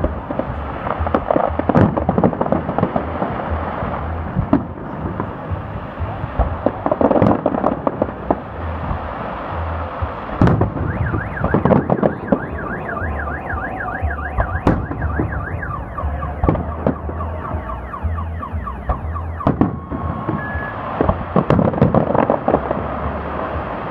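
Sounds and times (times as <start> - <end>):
fireworks bangs and crackles: 0.0 - 23.9
car alarm siren warbling: 10.7 - 21.1.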